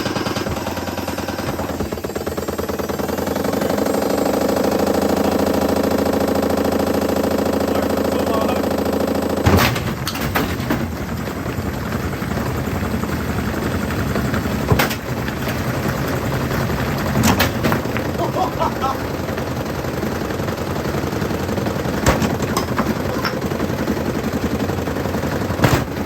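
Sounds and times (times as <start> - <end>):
washing machine clattering and knocking: 0.0 - 26.0
washing machine humming and rattling: 0.0 - 26.0
loud bangs: 21.9 - 23.6, 25.5 - 26.0.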